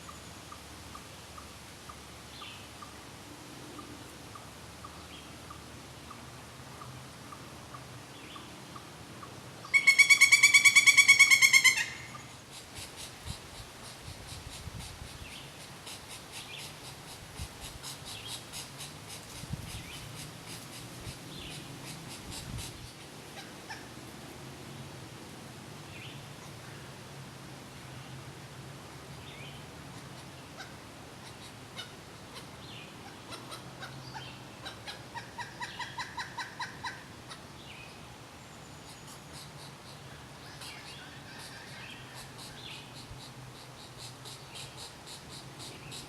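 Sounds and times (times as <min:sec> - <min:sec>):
woodpecker calling: 0:09.6 - 0:23.9, 0:30.0 - 0:37.5, 0:38.8 - 0:46.0.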